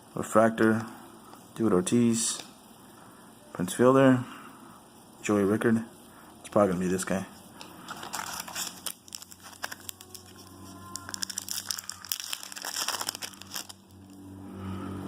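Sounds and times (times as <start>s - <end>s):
trading cards crinkling and rustling: 7.6s - 14.2s.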